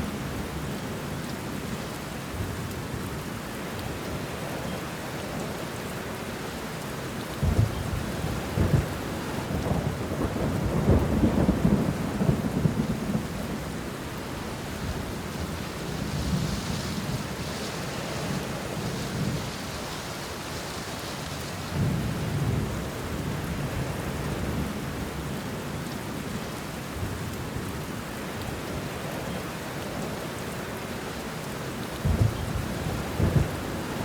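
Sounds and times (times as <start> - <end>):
rain on leaves: 0.0 - 34.0
thunder rumbling: 7.4 - 19.7, 32.0 - 34.0.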